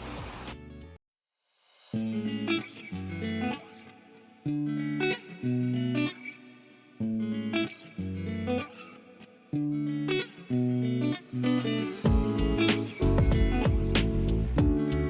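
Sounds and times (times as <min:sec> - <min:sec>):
electric guitar chords: 0:02.0 - 0:15.0.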